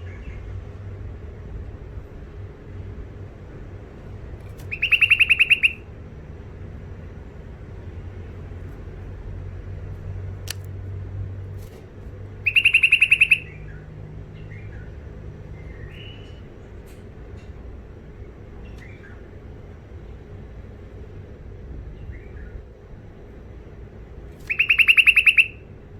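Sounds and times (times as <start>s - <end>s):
sharp click: 10.4s - 10.7s.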